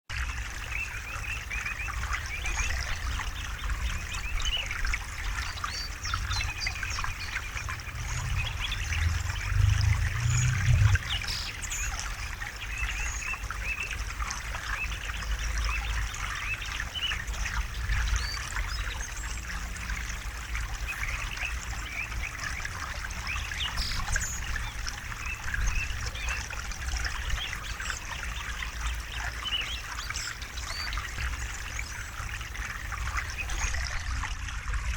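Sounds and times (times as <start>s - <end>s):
river water babbling over stones: 0.1s - 34.9s
deep low rumble: 6.9s - 11.5s.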